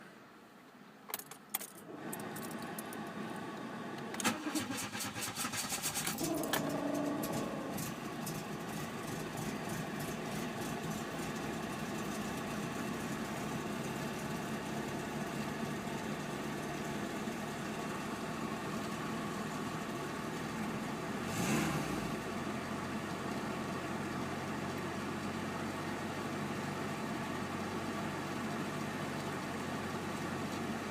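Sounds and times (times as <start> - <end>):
car engine idling and revving: 1.8 - 30.9
starter clicks: 4.2 - 7.9
starter cranking: 4.2 - 8.5.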